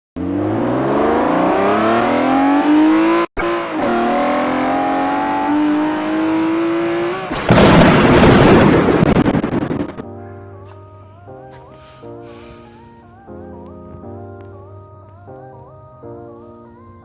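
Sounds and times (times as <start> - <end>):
car engine accelerating: 0.2 - 10.0
loud crackling burst: 7.2 - 10.1.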